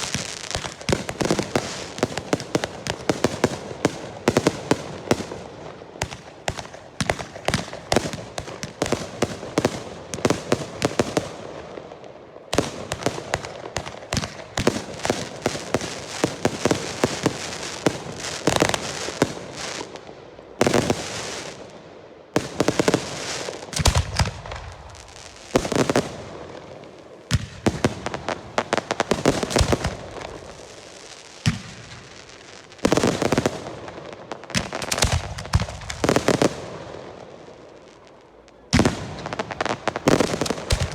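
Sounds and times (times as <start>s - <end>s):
stick rockets crackling bangs: 23.7s - 24.6s, 38.7s - 40.9s.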